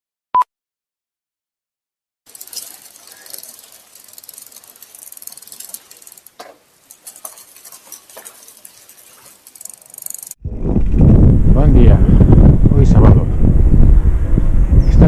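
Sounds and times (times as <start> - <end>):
bicycle freehub ratcheting: 2.3 - 10.4.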